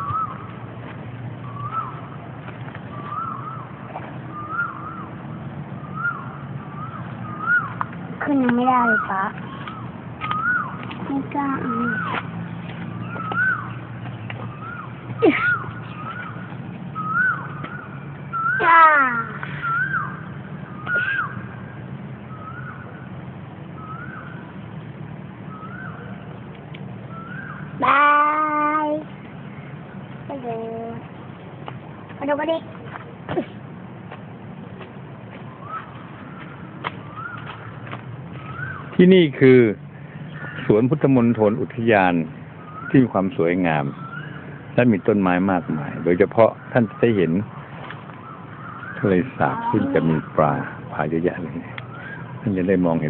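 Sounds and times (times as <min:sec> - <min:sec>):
bird whistling call: 0:00.0 - 0:00.5, 0:01.4 - 0:02.2, 0:02.9 - 0:05.2, 0:05.8 - 0:07.8, 0:08.8 - 0:10.8, 0:11.6 - 0:12.2, 0:12.9 - 0:13.8, 0:14.4 - 0:18.7, 0:19.4 - 0:21.5, 0:27.1 - 0:27.7.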